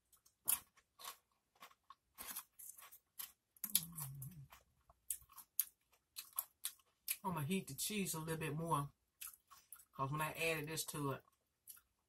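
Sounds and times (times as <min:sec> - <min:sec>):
tortilla chips being chewed: 0:00.0 - 0:07.2, 0:09.1 - 0:10.0, 0:11.2 - 0:12.0
person humming: 0:03.7 - 0:04.5.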